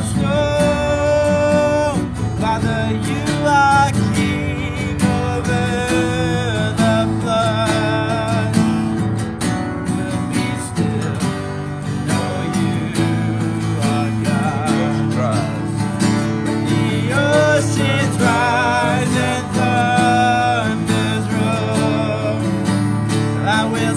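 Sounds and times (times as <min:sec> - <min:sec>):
acoustic guitar strumming: 0:00.0 - 0:23.9.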